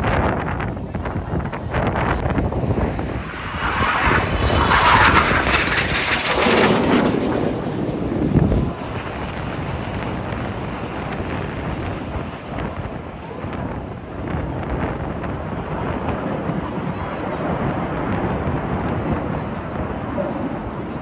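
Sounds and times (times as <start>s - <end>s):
aircraft flying past: 0.0s - 10.8s
wind buffeting microphone: 0.0s - 21.0s.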